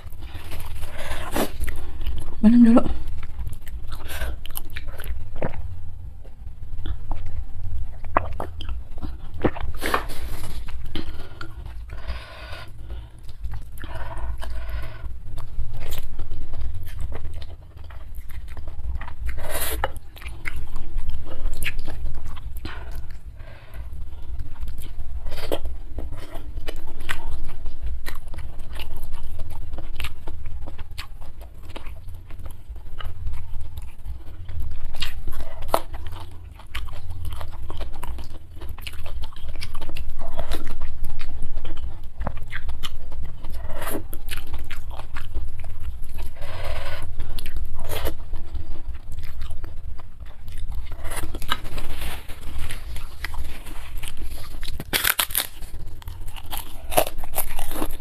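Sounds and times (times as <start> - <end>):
chewing and biting: 0.0 - 58.0
crunching: 0.0 - 58.0.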